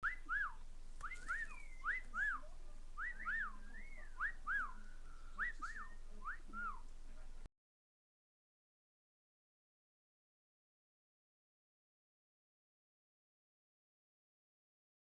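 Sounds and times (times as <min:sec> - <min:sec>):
cockatiel whistling: 0:00.0 - 0:06.8.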